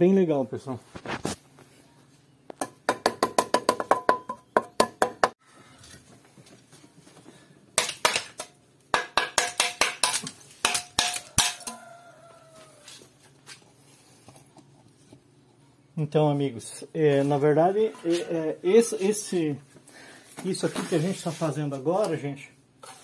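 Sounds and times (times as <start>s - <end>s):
trowel tapping bricks: 7.8s - 11.8s.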